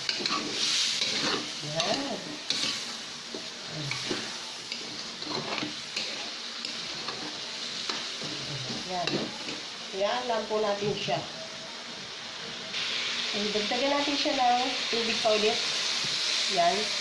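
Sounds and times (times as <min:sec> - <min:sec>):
metal spatula scraping a pan: 0:00.0 - 0:09.7
meat sizzling in oil: 0:00.0 - 0:17.0.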